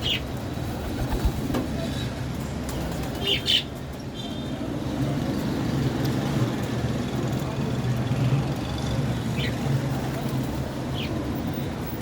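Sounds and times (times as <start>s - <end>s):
birds chirping: 0.0s - 0.4s, 1.8s - 4.6s, 9.2s - 11.3s.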